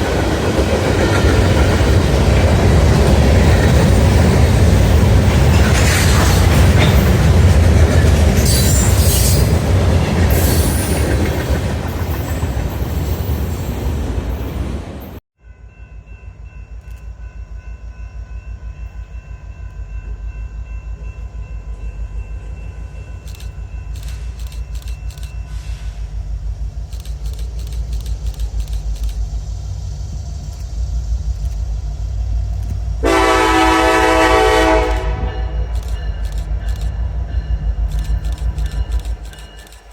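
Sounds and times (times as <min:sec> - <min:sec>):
diesel locomotive engines rumbling: 0:00.0 - 0:39.9
freight train rolling past: 0:00.0 - 0:39.9
locomotive air horn blast: 0:33.0 - 0:35.8.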